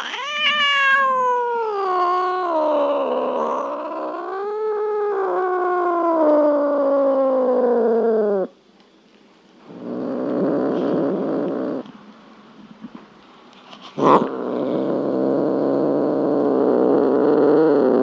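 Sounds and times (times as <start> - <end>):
cat meowing: 0.0 - 7.7.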